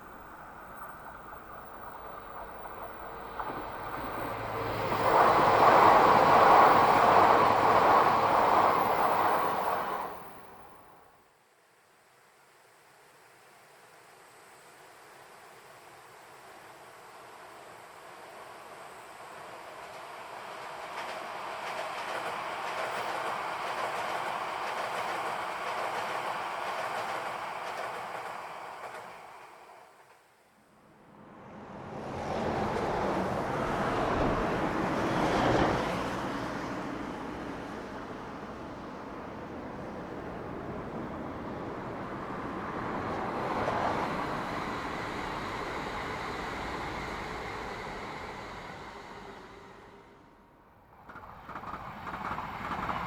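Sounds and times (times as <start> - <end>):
train running on rails: 0.0 - 11.2, 13.1 - 53.0.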